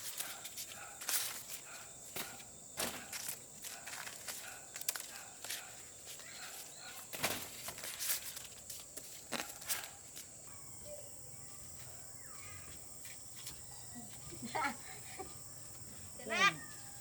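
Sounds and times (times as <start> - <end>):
crunching and rustling: 0.0 - 10.4
bird chirp: 10.4 - 17.0.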